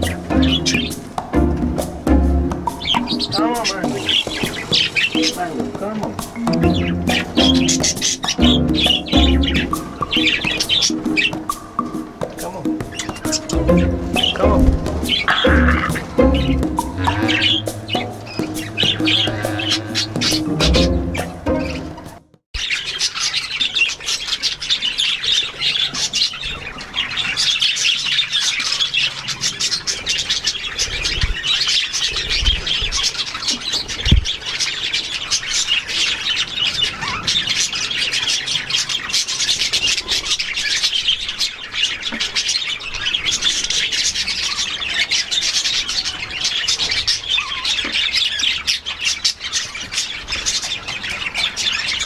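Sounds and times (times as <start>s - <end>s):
low thumps: 0.0s - 10.6s, 12.7s - 22.2s
birds chattering and squawking: 0.0s - 52.0s.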